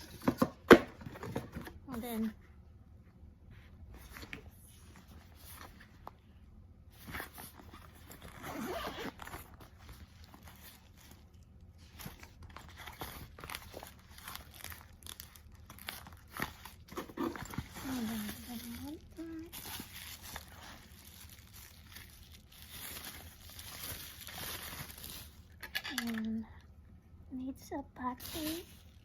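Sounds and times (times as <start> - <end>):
packaging rustling and crinkling: 6.9 - 26.3, 28.2 - 29.0.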